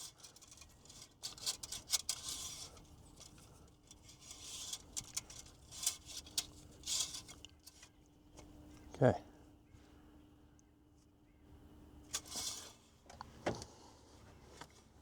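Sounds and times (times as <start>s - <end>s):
oil dipstick clicking and scraping: 0.0s - 8.0s, 12.1s - 13.7s.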